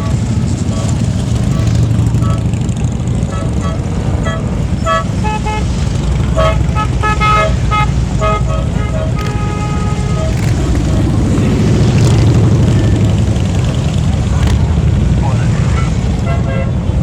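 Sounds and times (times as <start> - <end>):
horns tooting: 0.0 - 17.0
motorcycle engines rumbling: 0.0 - 17.0.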